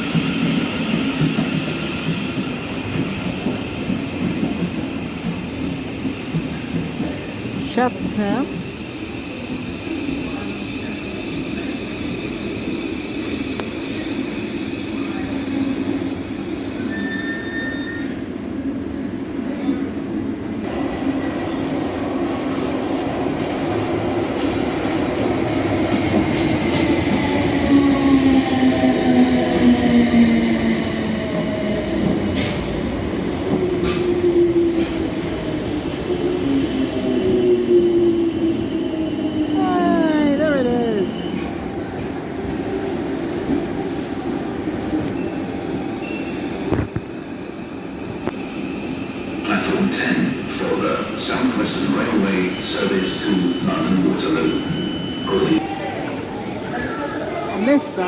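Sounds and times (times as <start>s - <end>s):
electric train rumble: 20.1s - 58.0s.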